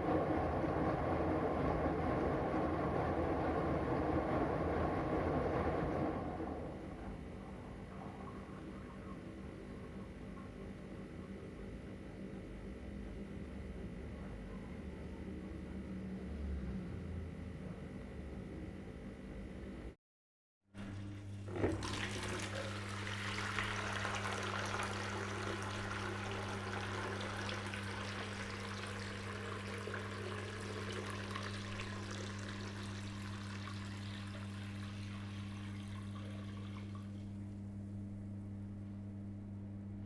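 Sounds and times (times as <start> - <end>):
water rushing in washing machine: 0.0 - 7.2, 20.8 - 37.4
washing machine low hum: 0.0 - 20.0, 20.7 - 40.0.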